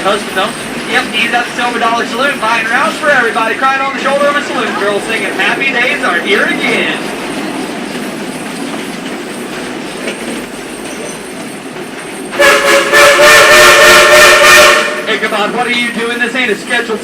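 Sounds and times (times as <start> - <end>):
train rolling along track: 0.0 - 17.0
steam locomotive whistle chord: 12.4 - 15.2.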